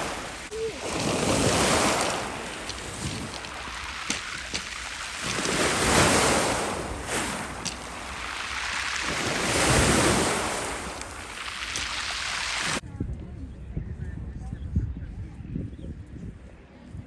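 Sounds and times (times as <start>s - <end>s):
waves breaking on shore: 0.0s - 12.8s
wind on microphone: 0.0s - 17.0s.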